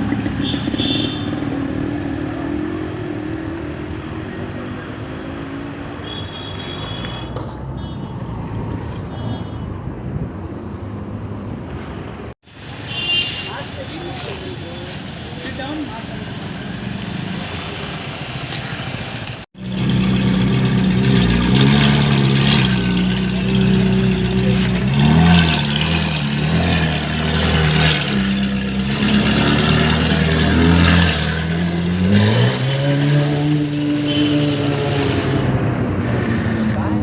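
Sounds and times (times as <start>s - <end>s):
car engine revving: 19.6s - 36.9s.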